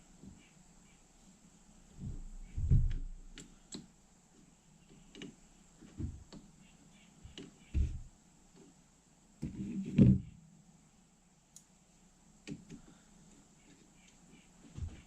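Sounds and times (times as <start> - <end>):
dull knocks: 2.0 - 3.2, 7.7 - 8.1.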